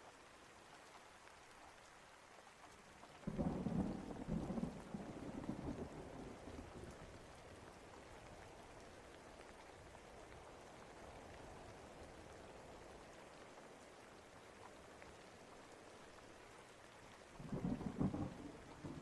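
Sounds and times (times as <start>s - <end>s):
faint rain falling: 0.0s - 19.0s
thunder rumble: 3.3s - 6.9s, 17.4s - 19.0s.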